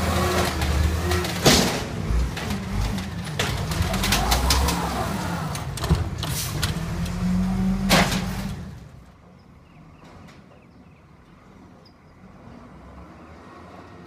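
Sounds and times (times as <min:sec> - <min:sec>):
garbage truck mechanical hum: 0:00.0 - 0:13.0
metal clanks and knocks: 0:00.3 - 0:04.8.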